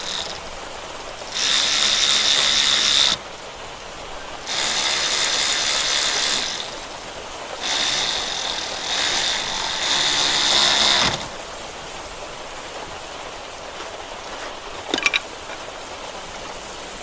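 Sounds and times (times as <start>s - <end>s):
powered ratchet tool whining: 0.0s - 0.5s, 1.4s - 3.2s, 4.5s - 6.8s, 7.6s - 11.4s.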